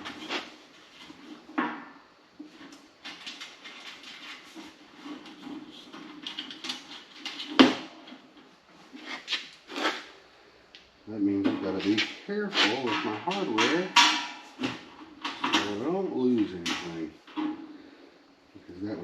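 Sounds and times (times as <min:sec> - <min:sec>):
faint steady hum: 0:00.0 - 0:19.0
knocks and clatter of hardware: 0:12.8 - 0:15.8.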